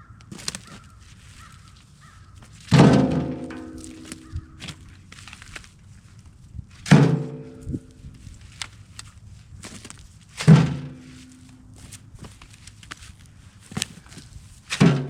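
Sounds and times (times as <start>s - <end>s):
firewood thrown onto wood: 0.3s - 0.8s, 2.4s - 5.6s, 6.8s - 7.9s, 9.6s - 11.9s, 13.7s - 15.0s
small knocks: 2.4s - 4.9s.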